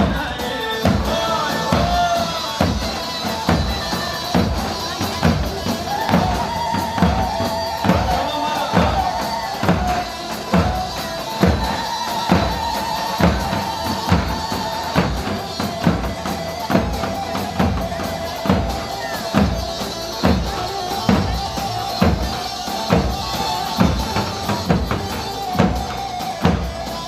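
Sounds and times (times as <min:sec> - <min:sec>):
heavy drum beat: 0:00.0 - 0:27.0
live band dance music: 0:00.0 - 0:27.0.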